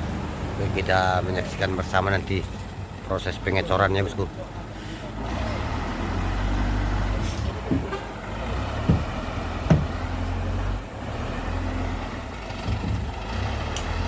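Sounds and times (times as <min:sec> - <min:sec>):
truck diesel engine running: 0:00.0 - 0:14.0
short knocks: 0:07.6 - 0:08.1, 0:08.8 - 0:10.0.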